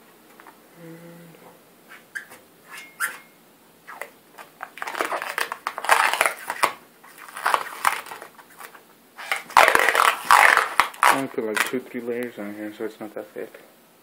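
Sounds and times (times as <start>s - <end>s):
rubber coating peeling and crinkling: 3.9s - 12.3s.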